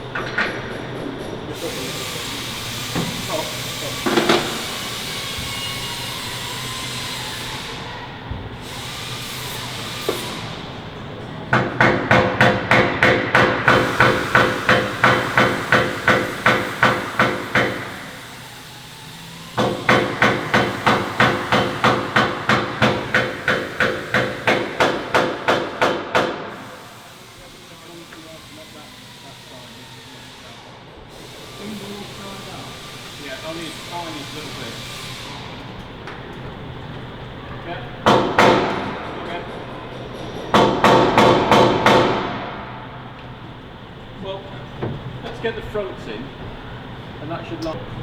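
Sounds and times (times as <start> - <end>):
hammer striking metal: 11.5 - 18.1, 19.6 - 26.5, 38.0 - 42.7.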